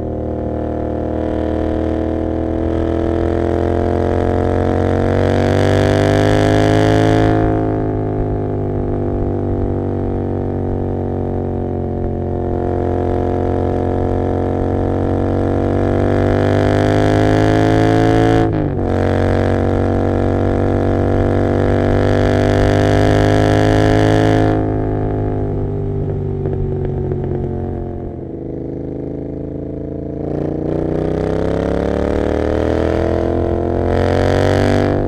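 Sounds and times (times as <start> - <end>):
motorcycle engine droning: 0.0 - 35.0.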